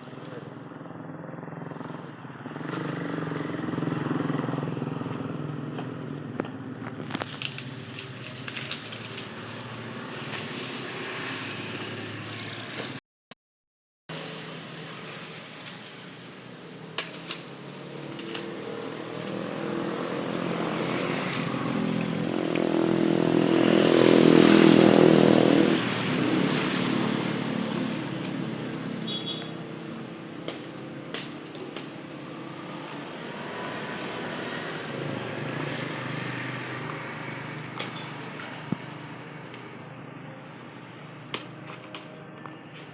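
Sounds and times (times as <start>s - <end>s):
vehicle engine passing by: 0.0s - 13.0s, 14.1s - 41.2s.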